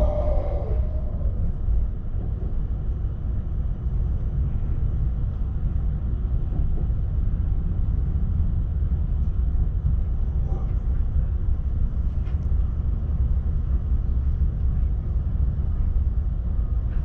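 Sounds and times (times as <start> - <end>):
train coach rumble and hum: 0.0 - 17.0.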